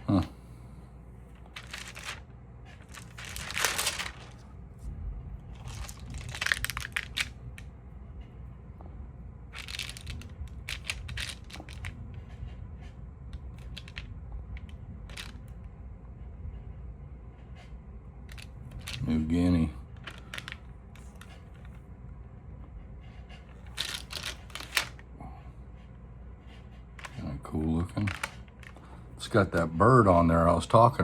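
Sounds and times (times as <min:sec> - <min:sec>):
plastic sleeves crinkling: 0:01.3 - 0:02.2, 0:02.8 - 0:04.5, 0:05.6 - 0:07.4, 0:09.6 - 0:11.9, 0:20.0 - 0:21.3, 0:23.7 - 0:25.0, 0:27.9 - 0:29.7.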